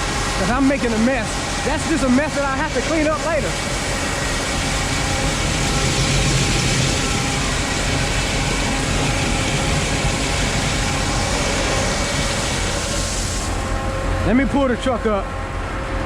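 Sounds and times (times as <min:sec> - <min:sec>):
grain elevator running: 0:00.0 - 0:15.3.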